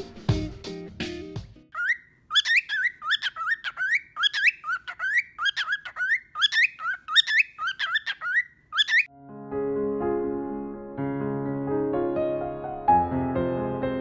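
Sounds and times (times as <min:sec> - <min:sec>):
cockatiel chirping: 0:01.7 - 0:09.1.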